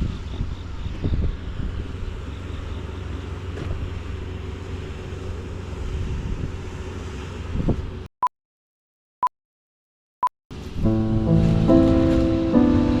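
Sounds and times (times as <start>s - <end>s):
wind buffeting microphone: 0.0s - 8.0s
farm machine engine running: 0.1s - 8.0s.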